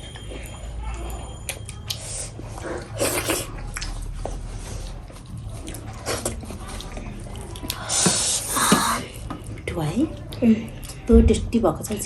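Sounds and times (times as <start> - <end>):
chewing and mouth smacking: 0.0 - 11.1.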